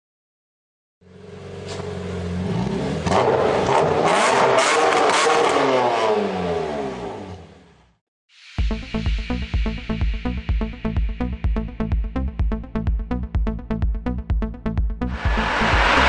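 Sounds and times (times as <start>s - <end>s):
diesel engine revving: 1.1s - 7.7s, 15.1s - 16.0s
electronic music with beat: 8.6s - 16.0s.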